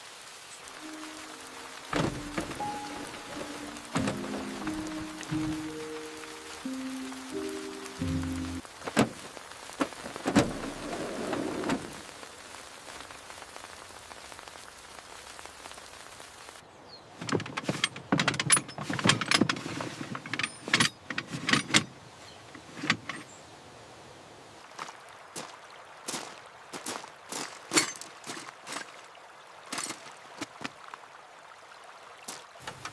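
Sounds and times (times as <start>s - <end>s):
steady rain falling: 0.0s - 32.9s
knocks and clicks: 1.9s - 6.0s.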